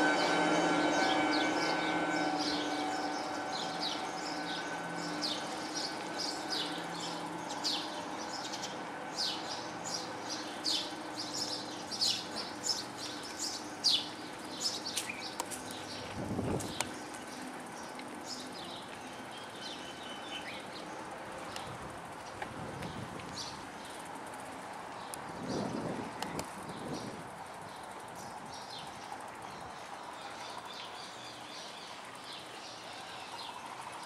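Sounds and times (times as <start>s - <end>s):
small birds chirping: 2.2s - 24.2s.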